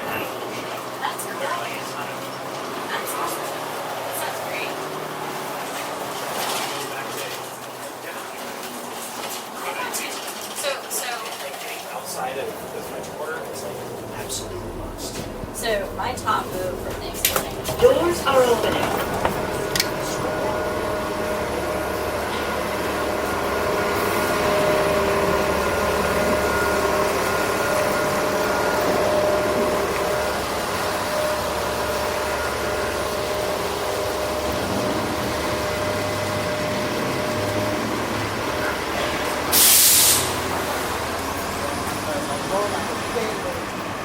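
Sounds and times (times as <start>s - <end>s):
bus engine rumble: 0.0s - 44.0s
road noise: 0.0s - 44.0s
air brakes hissing: 39.5s - 40.5s.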